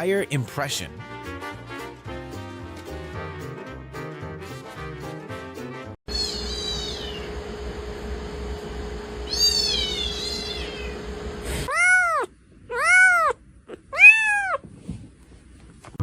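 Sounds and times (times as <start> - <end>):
cat meowing: 6.1 - 7.3, 9.3 - 11.0, 11.7 - 14.6
steady hum: 6.1 - 11.7.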